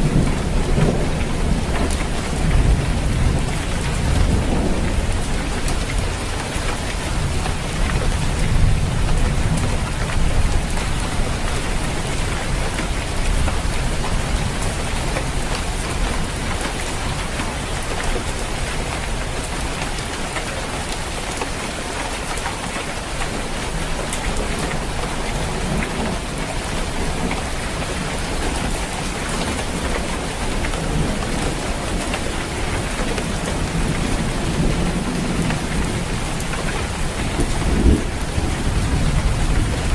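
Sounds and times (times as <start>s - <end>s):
rain falling on a roof: 0.0s - 39.9s.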